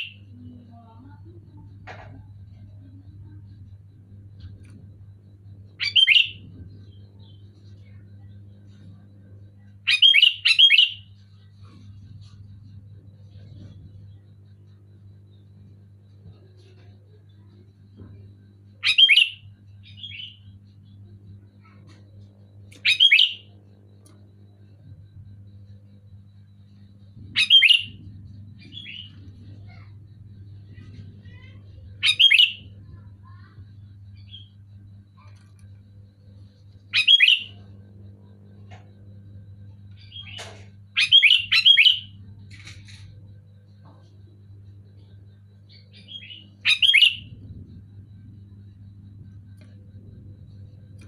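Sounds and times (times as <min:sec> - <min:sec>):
steady low hum: 0:00.0 - 0:51.0
bulbul calling: 0:05.8 - 0:06.4, 0:27.3 - 0:28.0, 0:36.9 - 0:37.6, 0:40.0 - 0:42.2, 0:46.0 - 0:47.4.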